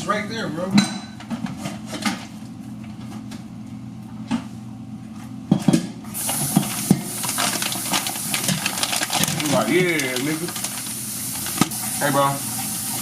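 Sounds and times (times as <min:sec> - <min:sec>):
steady cooking hiss: 0:06.1 - 0:13.0.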